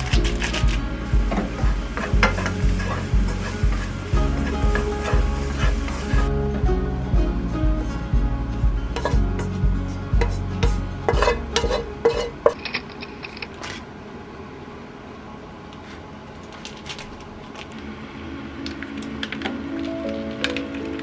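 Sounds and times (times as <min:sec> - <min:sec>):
background music: 0:00.0 - 0:12.6.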